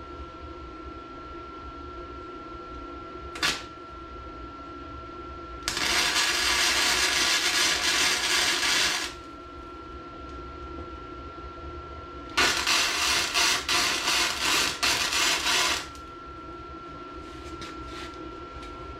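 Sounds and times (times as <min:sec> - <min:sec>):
welder welding: 0:03.4 - 0:03.8, 0:05.6 - 0:09.3, 0:12.3 - 0:16.1.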